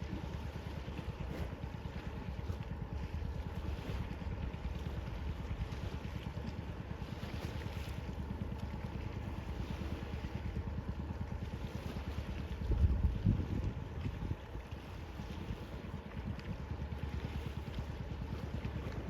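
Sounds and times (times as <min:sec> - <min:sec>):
wind buffeting microphone: 0:12.2 - 0:16.6.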